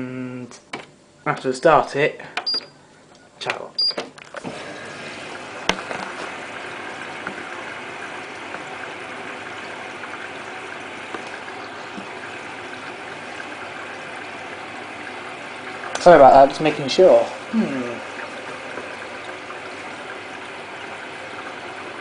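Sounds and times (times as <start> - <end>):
washing machine click: 2.4 - 2.7
water rushing into washing machine: 3.5 - 22.0.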